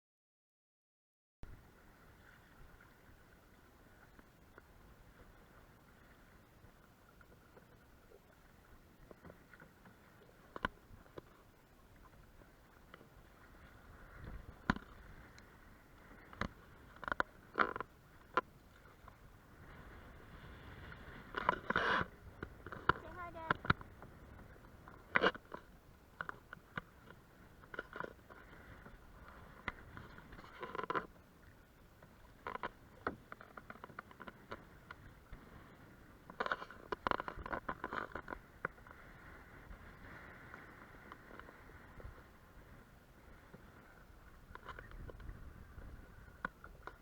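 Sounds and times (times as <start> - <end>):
paddles knocking against hull: 12.0 - 19.7, 21.0 - 31.1, 36.3 - 39.0
paddle knocking against hull: 12.7 - 15.4, 21.2 - 28.6.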